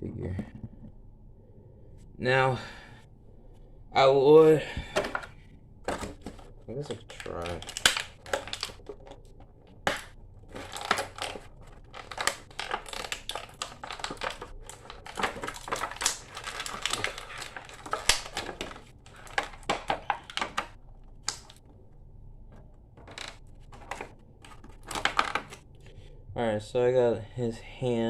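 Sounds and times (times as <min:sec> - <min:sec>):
plastic packaging crackling: 0:05.9 - 0:21.8, 0:22.6 - 0:25.7.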